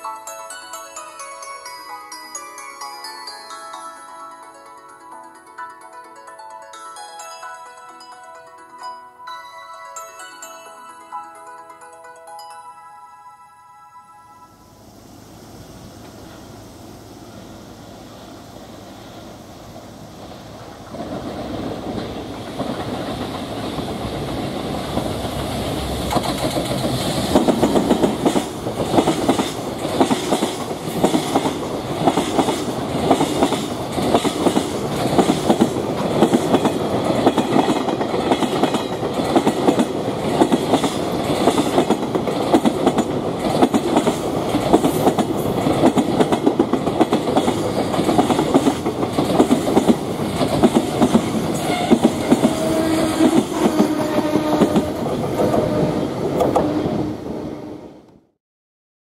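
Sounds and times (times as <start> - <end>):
electric locomotive passing: 0.0 - 58.2
wheels clacking over rail joints: 19.8 - 57.0.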